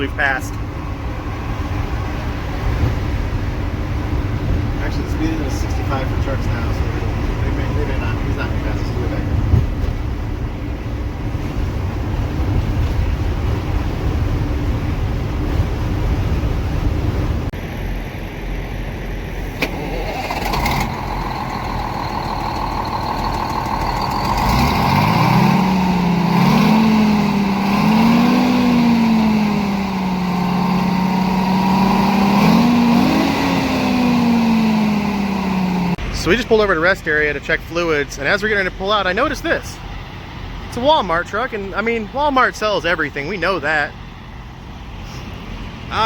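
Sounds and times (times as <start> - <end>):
bus engine rumble: 0.0 - 46.0
road noise: 0.0 - 46.0
pitched whine: 17.6 - 36.6.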